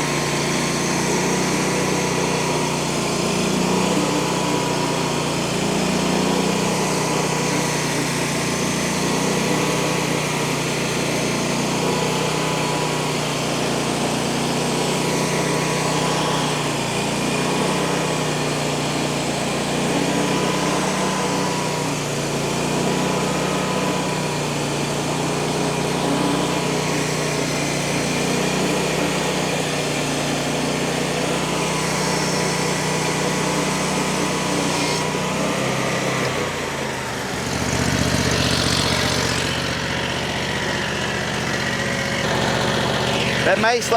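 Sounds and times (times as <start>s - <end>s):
small gas engine running: 0.0s - 43.9s
band blade cutting log: 26.0s - 36.8s.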